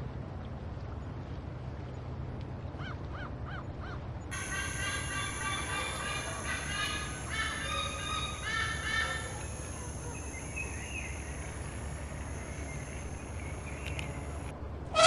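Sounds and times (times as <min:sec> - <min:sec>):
low background hum: 0:00.0 - 0:15.0
harsh bird calls: 0:04.3 - 0:15.0.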